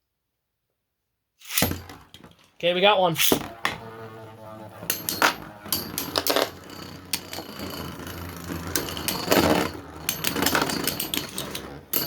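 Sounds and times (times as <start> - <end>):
spinning tops clashing: 1.4 - 2.6, 4.8 - 12.0
steady whir of spinning tops: 1.5 - 12.0.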